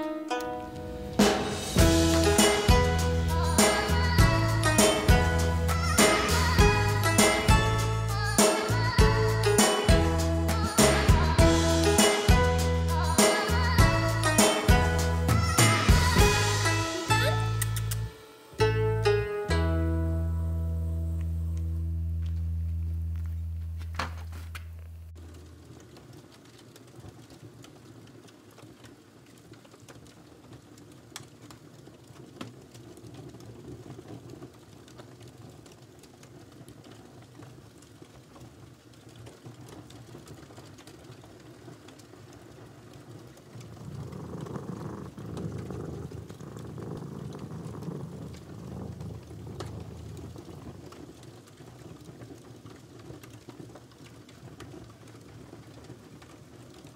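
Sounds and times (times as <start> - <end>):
guitar note: 0.0 - 7.8, 9.0 - 25.0
rustling: 22.2 - 25.8
cats chewing food: 43.6 - 51.1.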